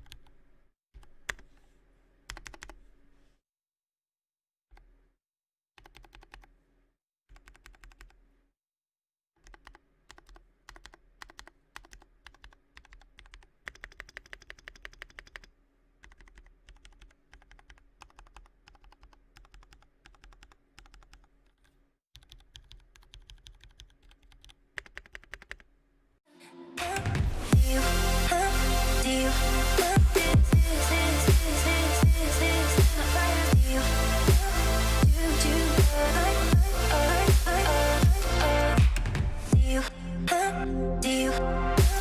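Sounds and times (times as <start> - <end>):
typing on mechanical keyboard: 2.3 - 2.8, 5.8 - 6.5, 9.4 - 25.7.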